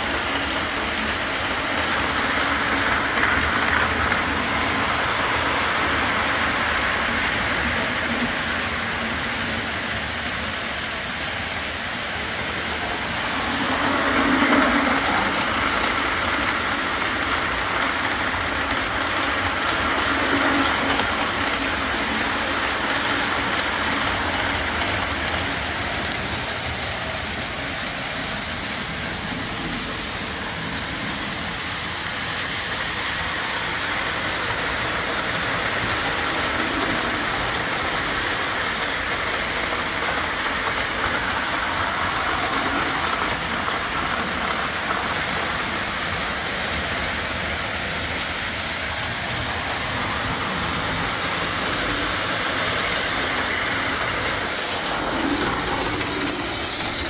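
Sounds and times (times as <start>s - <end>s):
railcar wheels on rails: 0.0s - 57.0s.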